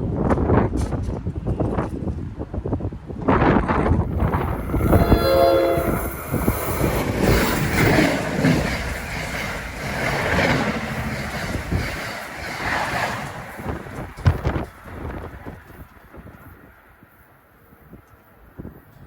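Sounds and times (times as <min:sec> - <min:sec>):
train wheel and rail noise: 0:00.0 - 0:19.0
train horn blast: 0:04.3 - 0:06.4.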